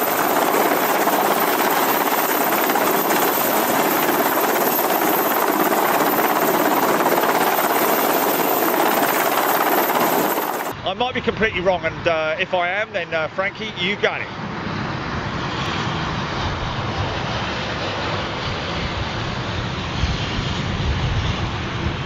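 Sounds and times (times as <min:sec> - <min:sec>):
helicopter rotor and turbine noise: 0:00.0 - 0:10.8.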